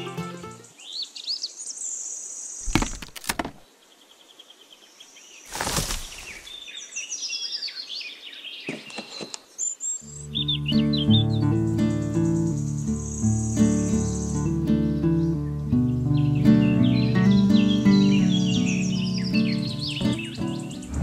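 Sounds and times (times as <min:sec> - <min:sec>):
background music: 0:00.0 - 0:00.7
loud knocks: 0:02.6 - 0:03.6
birds chirping: 0:05.3 - 0:21.0.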